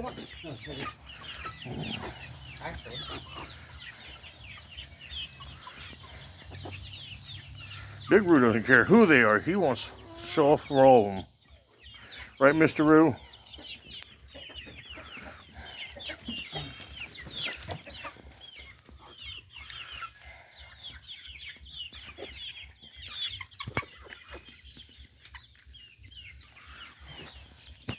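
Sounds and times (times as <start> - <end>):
hens and chicks clucking and cheeping: 0.0 - 27.9.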